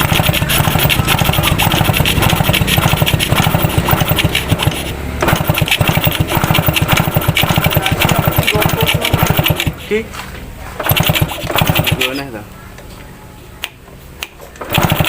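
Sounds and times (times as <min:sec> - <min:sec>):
small engine running: 0:00.0 - 0:10.0, 0:10.8 - 0:12.3, 0:14.6 - 0:15.0.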